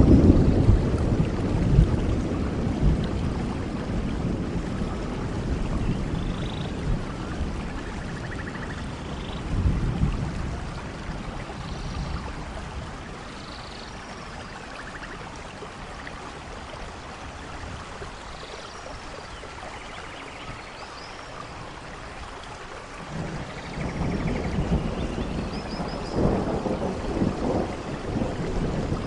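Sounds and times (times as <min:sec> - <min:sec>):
thunder rumbling: 0:00.0 - 0:13.3, 0:23.0 - 0:29.0
rain hissing: 0:00.0 - 0:29.0.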